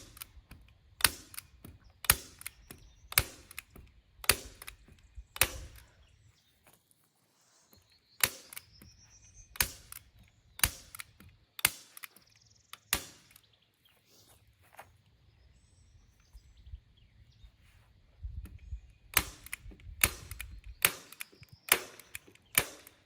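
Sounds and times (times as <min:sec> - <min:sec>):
staple gun snaps: 0:00.0 - 0:05.8, 0:09.6 - 0:13.5, 0:19.1 - 0:23.0.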